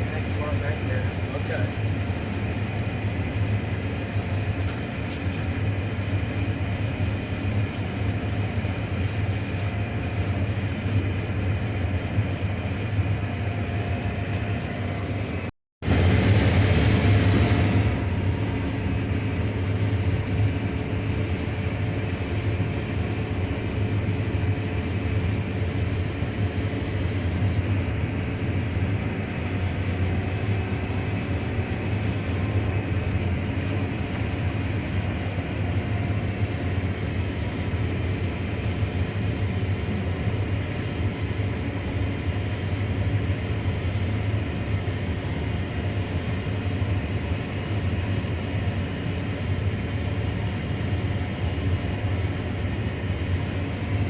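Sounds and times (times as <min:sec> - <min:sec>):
engine hum: 0:00.0 - 0:54.0
threshing machinery noise: 0:15.3 - 0:19.6.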